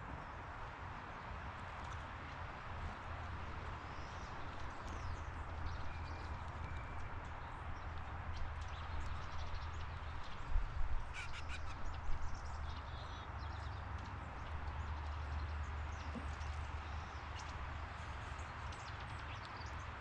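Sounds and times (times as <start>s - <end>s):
bird chirps: 11.2s - 13.7s.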